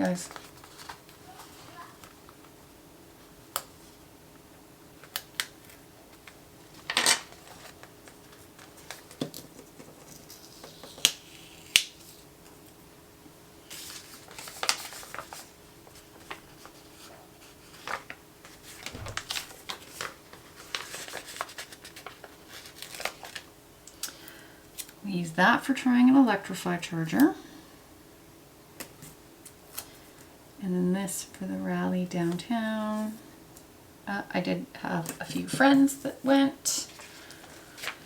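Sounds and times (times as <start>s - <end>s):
paper rustling and crinkling: 0.0s - 2.6s, 5.0s - 12.6s, 13.6s - 23.5s, 36.8s - 38.0s.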